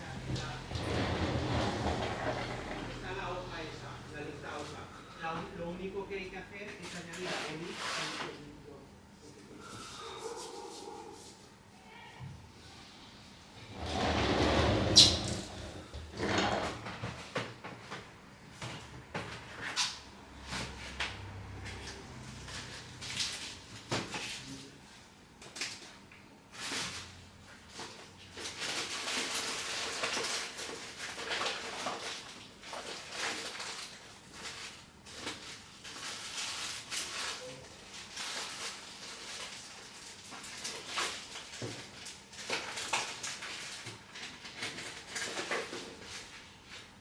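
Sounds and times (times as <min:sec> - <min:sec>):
rustling: 0:00.0 - 0:03.2
tools scraping: 0:00.3 - 0:03.0, 0:13.7 - 0:16.9.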